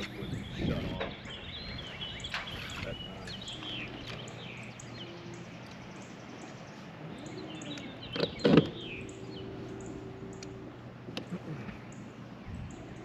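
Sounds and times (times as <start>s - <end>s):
low steady hum: 0.0s - 13.0s
songbirds chirping: 0.0s - 13.0s.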